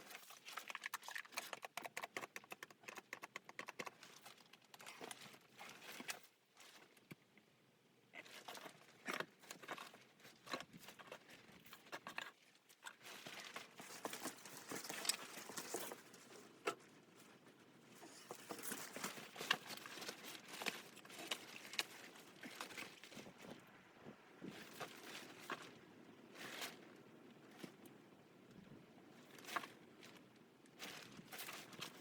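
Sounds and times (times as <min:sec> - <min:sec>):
rustling and crinkling: 0:00.0 - 0:07.5, 0:08.1 - 0:32.0.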